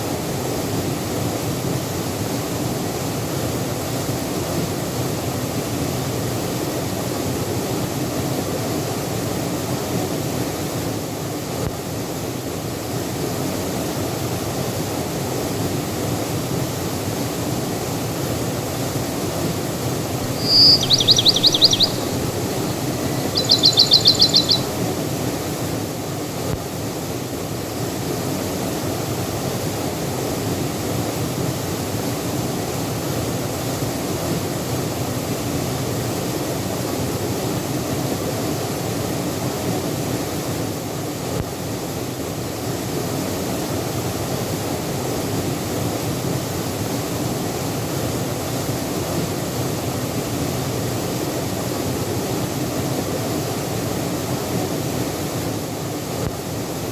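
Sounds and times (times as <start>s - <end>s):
bird trilling: 20.2s - 25.0s.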